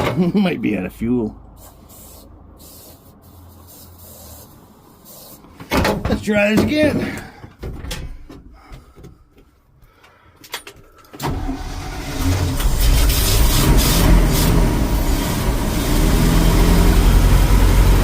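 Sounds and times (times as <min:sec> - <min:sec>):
truck engine cranking and running: 0:10.4 - 0:18.0.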